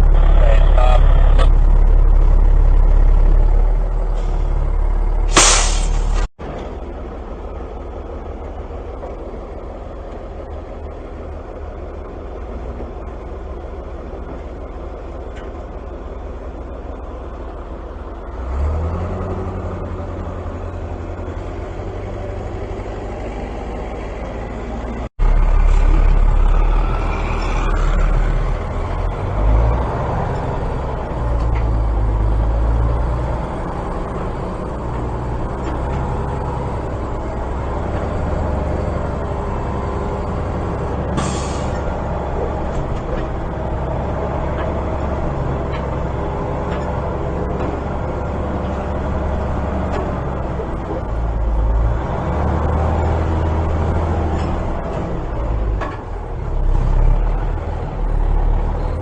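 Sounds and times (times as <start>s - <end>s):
heavy vehicle engine running: 0.0s - 59.0s
short sharp hiss: 5.3s - 6.3s.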